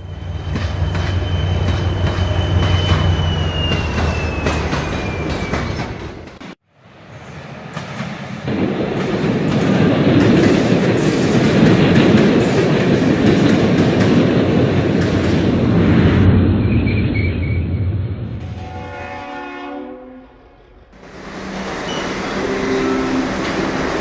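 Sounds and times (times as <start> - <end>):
train wheels clacking on rails: 0.3 - 6.6, 7.6 - 15.7.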